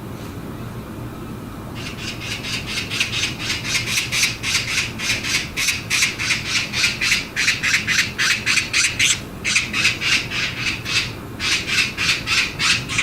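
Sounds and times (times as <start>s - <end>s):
magpie chattering: 1.8s - 13.0s.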